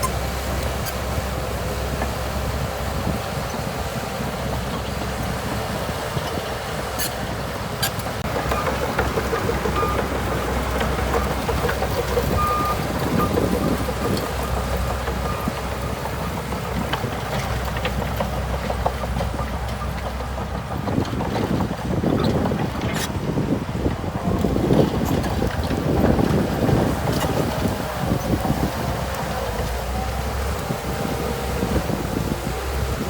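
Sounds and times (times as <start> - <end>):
bulldozer diesel engine running: 0.0 - 33.0
wind on microphone: 0.0 - 33.0.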